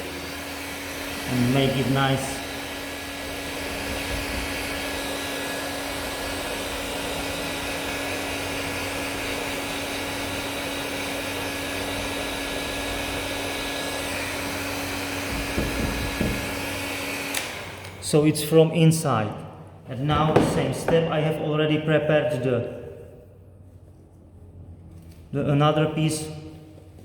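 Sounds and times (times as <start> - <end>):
hot air gun blowing: 0.0 - 18.1
handling knocks: 20.1 - 21.1.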